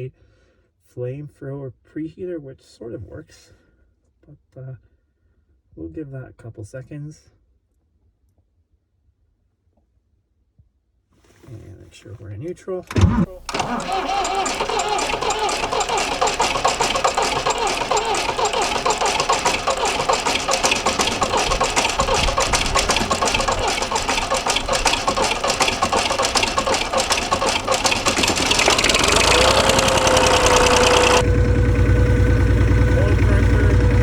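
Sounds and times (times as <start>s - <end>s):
diesel tractor engine running: 12.9s - 34.0s
starter motor cranking: 12.9s - 34.0s.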